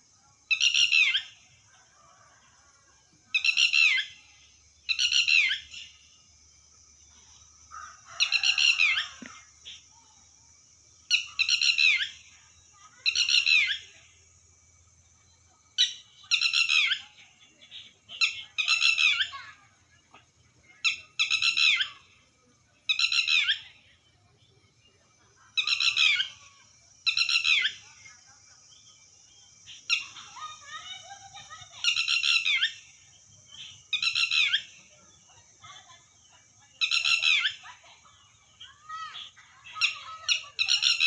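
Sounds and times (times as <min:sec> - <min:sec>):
steady high hiss: 0:00.0 - 0:40.9
lapwing calling: 0:00.0 - 0:41.0.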